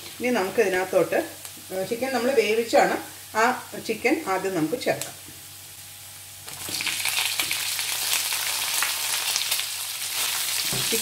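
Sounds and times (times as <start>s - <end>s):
oil sizzling in a wok: 0.0s - 11.0s
chicken sizzling and crackling in oil: 5.0s - 11.0s.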